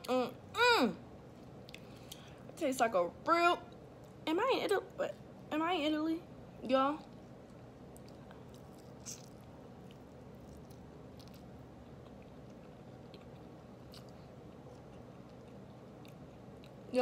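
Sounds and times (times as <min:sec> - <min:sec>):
person chewing food: 0:01.3 - 0:02.4, 0:07.0 - 0:16.9.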